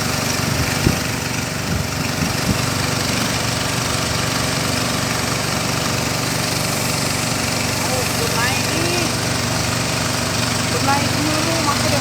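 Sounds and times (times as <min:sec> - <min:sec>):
small boat engine idling: 0:00.0 - 0:12.0.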